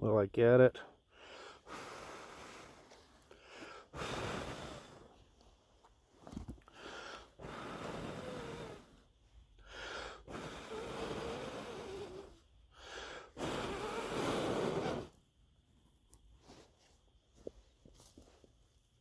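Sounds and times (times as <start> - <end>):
quick in-breath: 1.0 - 5.4, 6.6 - 15.1
person blowing out breaths: 1.1 - 5.4, 6.6 - 15.2.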